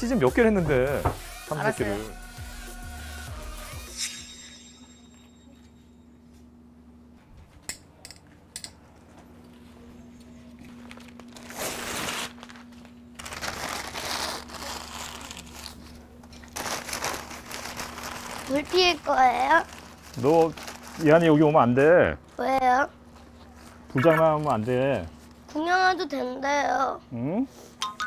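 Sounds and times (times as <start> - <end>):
paper crumpling and rustling: 10.6 - 21.5.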